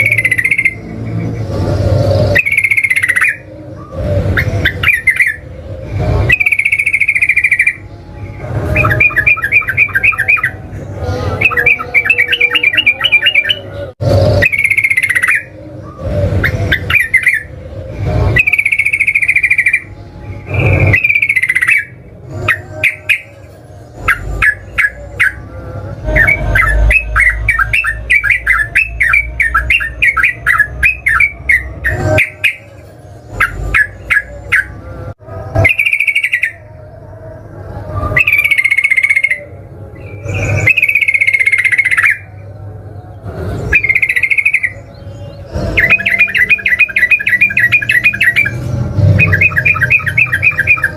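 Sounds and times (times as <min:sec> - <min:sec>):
bird singing bubbly phrases: 0:02.2 - 0:05.5, 0:14.4 - 0:17.6, 0:43.7 - 0:50.9.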